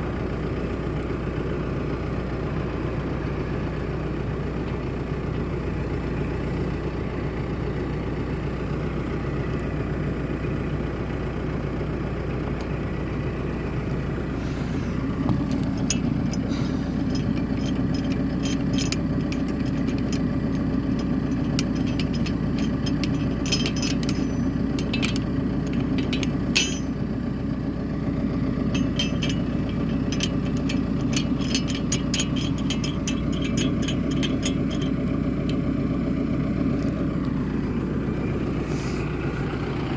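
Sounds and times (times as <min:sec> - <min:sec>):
tractor engine running: 0:00.0 - 0:39.9
sharp clicks and clatters: 0:15.3 - 0:27.0, 0:28.7 - 0:35.7.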